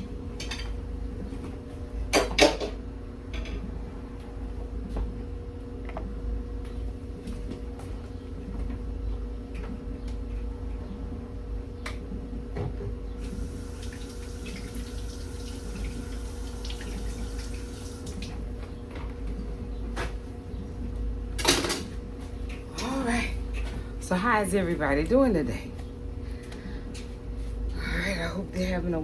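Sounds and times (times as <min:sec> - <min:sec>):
steady hum: 0:00.0 - 0:29.0
dishes clinking and knocking: 0:02.1 - 0:02.8
tap running water into sink: 0:13.3 - 0:18.4.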